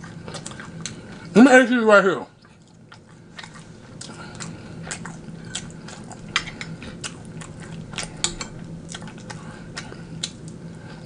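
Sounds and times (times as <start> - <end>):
crunchy chewing: 0.0 - 1.4, 2.3 - 11.0
faint low hum: 0.0 - 11.0
wet mouth clicks: 7.0 - 10.6.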